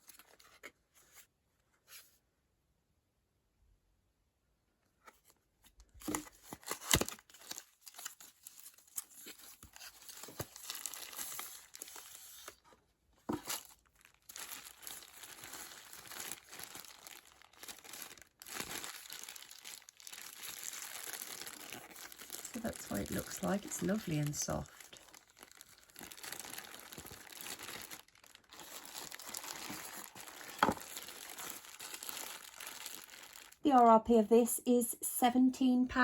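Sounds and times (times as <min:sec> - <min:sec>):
packaging tearing and crinkling: 0:06.0 - 0:12.6, 0:13.3 - 0:33.6.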